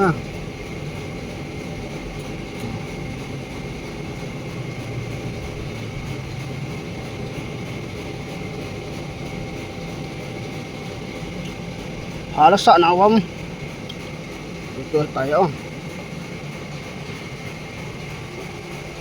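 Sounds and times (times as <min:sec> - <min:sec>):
machinery humming: 0:00.0 - 0:19.0.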